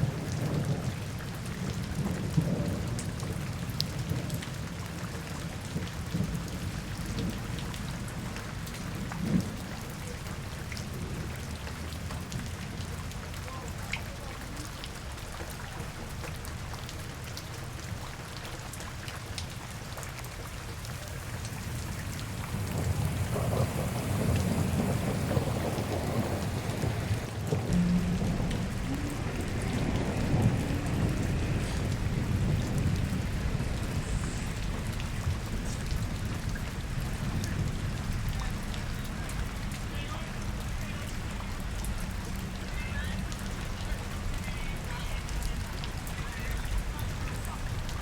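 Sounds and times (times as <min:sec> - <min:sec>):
rain falling on street: 0:00.0 - 0:48.0
deep rumble: 0:21.4 - 0:37.0.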